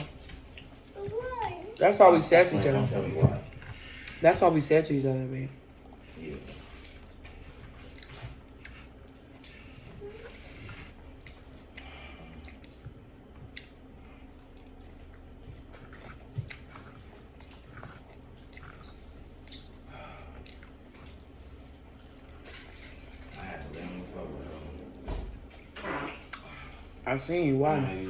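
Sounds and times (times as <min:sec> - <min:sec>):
person chewing food: 0:05.6 - 0:24.6, 0:25.4 - 0:27.0.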